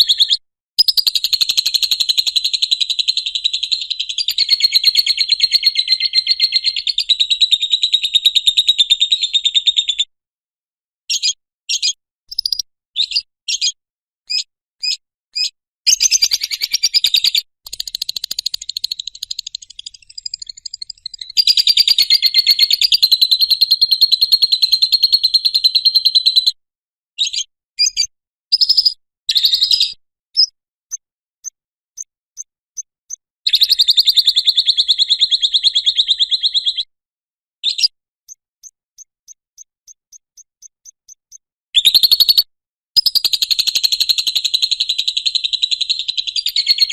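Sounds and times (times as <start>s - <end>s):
bird chirping and trilling: 0.0s - 10.1s, 11.1s - 26.5s, 27.2s - 30.5s, 33.5s - 36.9s, 37.6s - 46.9s
faint ticks: 38.3s - 41.4s.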